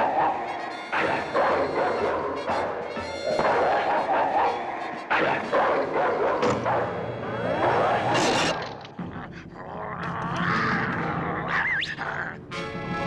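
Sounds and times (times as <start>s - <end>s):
dog barking and yipping: 0.0s - 7.0s
cartoon soundtrack: 0.0s - 8.6s.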